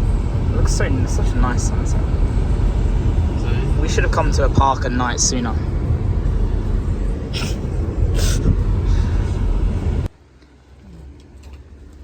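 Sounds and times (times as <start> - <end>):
loud low rumbling: 0.0 - 10.1
short hisses: 7.3 - 9.4.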